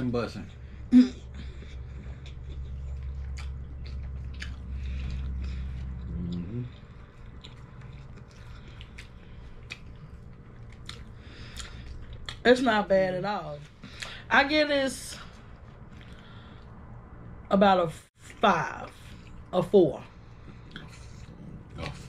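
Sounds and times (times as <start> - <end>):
people chewing: 0.4 - 12.4, 15.2 - 16.8, 20.2 - 22.0
person humming mm: 6.0 - 6.7.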